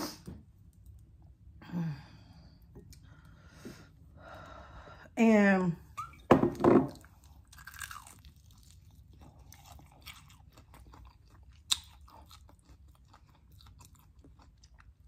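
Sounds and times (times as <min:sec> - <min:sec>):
chewing crispy chicken: 0:07.0 - 0:15.0.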